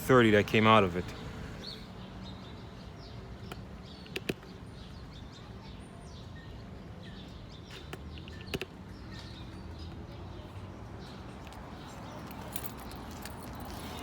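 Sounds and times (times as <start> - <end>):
birds chirping: 0.0 - 14.0
handling clicks: 3.4 - 4.5.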